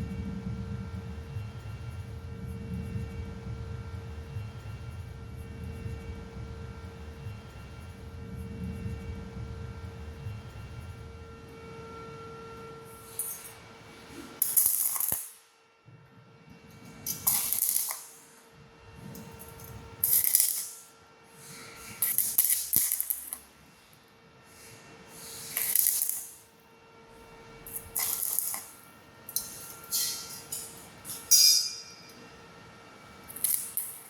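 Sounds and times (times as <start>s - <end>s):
faint steady hum: 0.0s - 34.0s
harsh metallic scraping: 27.7s - 32.3s.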